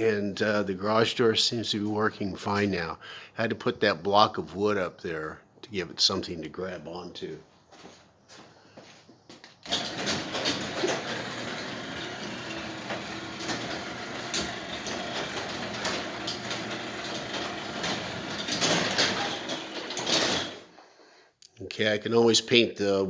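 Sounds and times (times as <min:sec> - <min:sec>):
garage door opener motor hum: 0:09.6 - 0:20.7
garage door rattling and clicking: 0:09.6 - 0:20.7.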